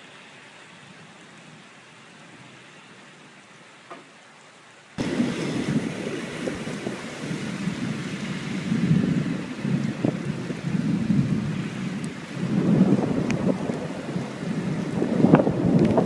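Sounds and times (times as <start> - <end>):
rain: 0.0 - 16.0
thunder rumbling: 5.0 - 16.0.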